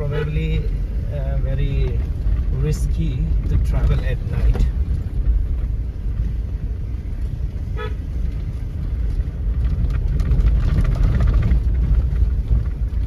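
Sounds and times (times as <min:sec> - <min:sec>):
vehicle engine and road noise: 0:00.0 - 0:13.0
short horn toot: 0:07.7 - 0:08.0.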